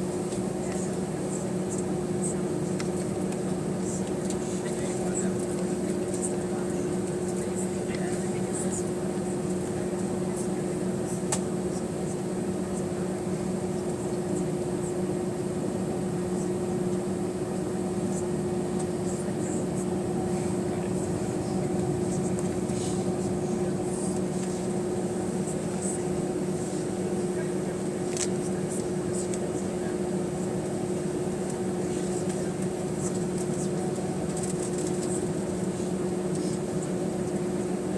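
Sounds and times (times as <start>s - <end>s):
aircraft cabin air conditioning hum: 0.0s - 37.9s.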